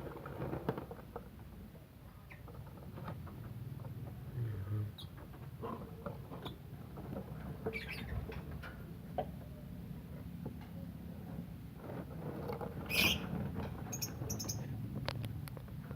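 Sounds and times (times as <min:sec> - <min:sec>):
birds scrabbling: 0:07.2 - 0:08.6, 0:12.6 - 0:14.8
lovebirds chirping and clicking: 0:13.9 - 0:14.7.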